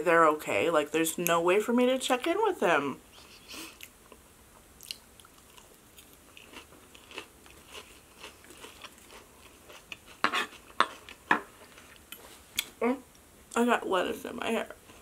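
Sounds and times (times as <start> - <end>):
chewing crisp lettuce: 4.8 - 12.7.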